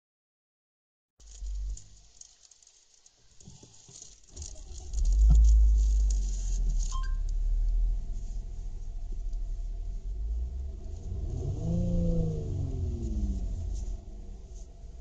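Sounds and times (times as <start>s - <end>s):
car engine idling and revving: 4.3s - 15.0s.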